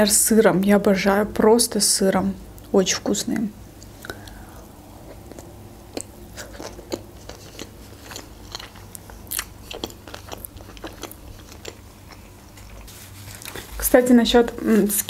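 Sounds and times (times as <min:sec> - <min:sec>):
person chewing wetly: 0:03.8 - 0:13.8.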